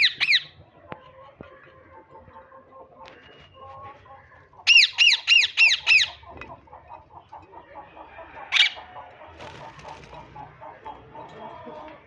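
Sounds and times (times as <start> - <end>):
parakeet chatter: 1.3 - 11.6
parakeet harsh calls: 4.6 - 6.2.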